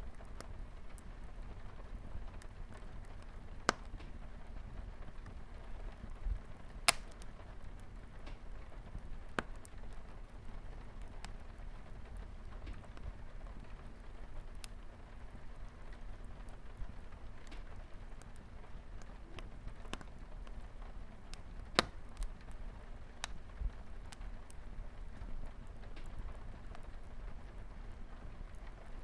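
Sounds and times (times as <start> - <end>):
light rain on a window: 0.0 - 29.0
wood fire crackling and popping: 0.0 - 29.0.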